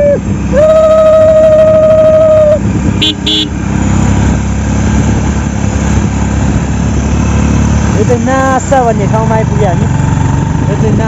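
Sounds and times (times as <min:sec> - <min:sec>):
engine rumble: 0:00.0 - 0:11.0
vehicle horn: 0:03.0 - 0:03.6.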